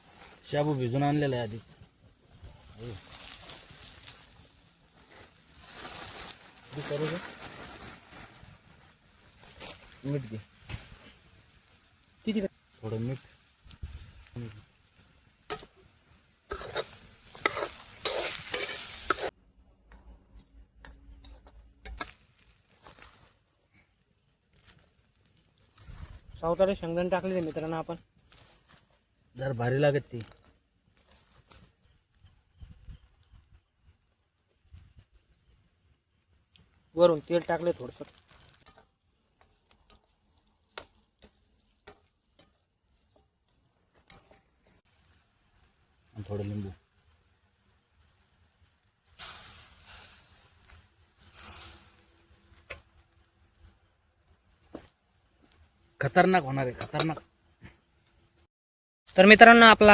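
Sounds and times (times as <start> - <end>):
food sizzling in a pan: 0.0 - 19.4, 20.2 - 58.2
crickets trilling: 0.0 - 58.3, 59.1 - 59.9
spoon scraping a pan: 15.5 - 19.3.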